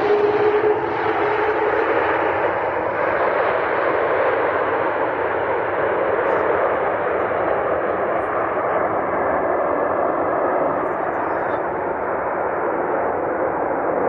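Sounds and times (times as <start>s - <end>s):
jet engine roar: 0.0s - 14.0s.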